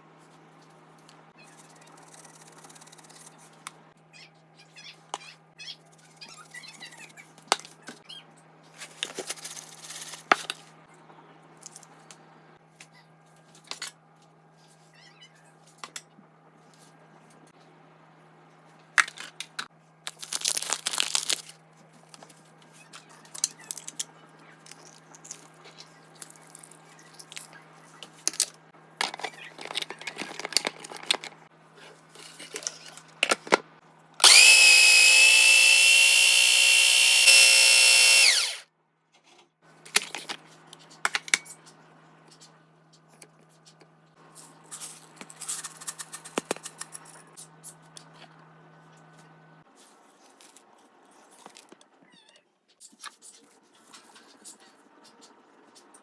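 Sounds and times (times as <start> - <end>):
electric grinder motor running: 34.2 - 38.6.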